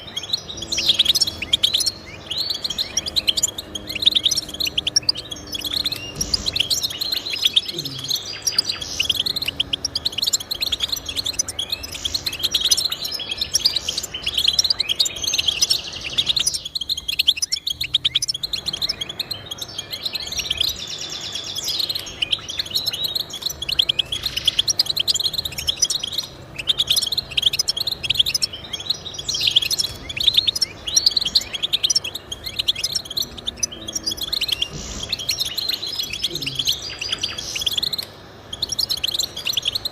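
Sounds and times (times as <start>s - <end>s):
goldfinch twittering song: 0.0s - 39.9s.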